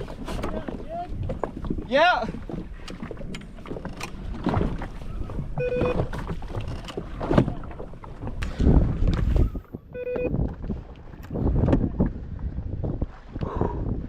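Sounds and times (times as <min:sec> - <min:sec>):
water splashing and sloshing: 0:00.0 - 0:14.0
wind on microphone: 0:00.0 - 0:14.0
short electronic beep: 0:05.6 - 0:06.0, 0:09.9 - 0:10.3.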